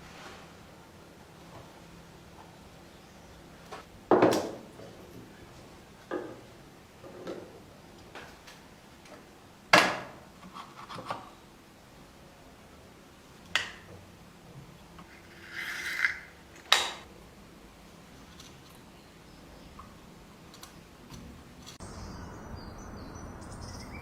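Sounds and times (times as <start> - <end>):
scraping rub on wood: 15.1 - 16.4.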